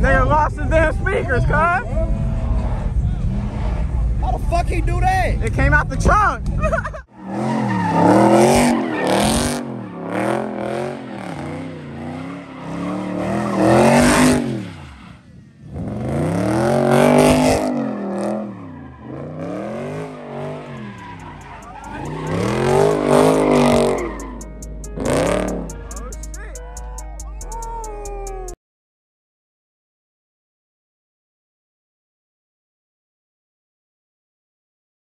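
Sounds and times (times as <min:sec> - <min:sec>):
car engine revving: 0:00.1 - 0:06.0, 0:07.2 - 0:28.6
tyres squealing on pavement: 0:07.2 - 0:10.3, 0:11.0 - 0:15.3, 0:17.7 - 0:24.5.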